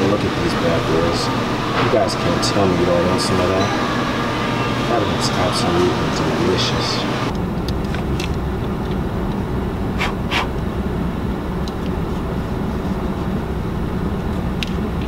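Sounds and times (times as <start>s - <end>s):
car engine rumble inside cabin: 7.3s - 15.0s.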